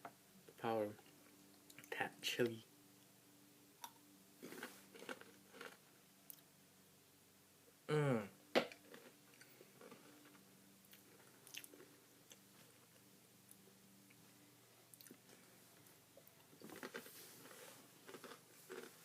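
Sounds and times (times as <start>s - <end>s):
crunching pretzel sticks: 4.4s - 6.5s, 14.9s - 19.0s
short falling vocal sound: 7.9s - 8.3s.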